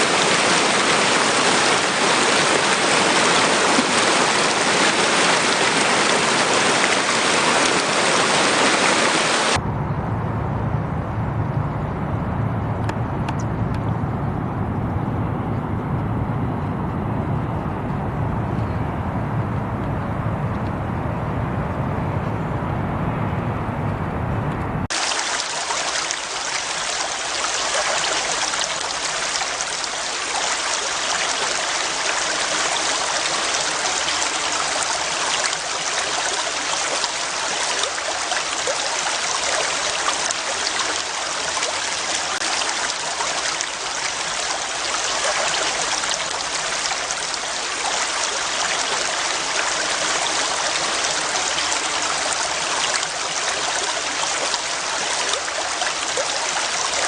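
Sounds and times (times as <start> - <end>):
stream water flowing over rocks: 0.0 - 9.6, 24.9 - 57.0
low rumble: 9.6 - 24.9.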